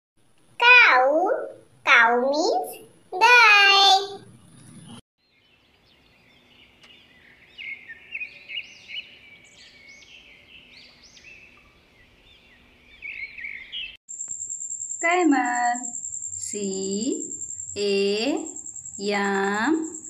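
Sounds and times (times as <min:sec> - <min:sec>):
birds chirping and singing: 0:04.2 - 0:14.0.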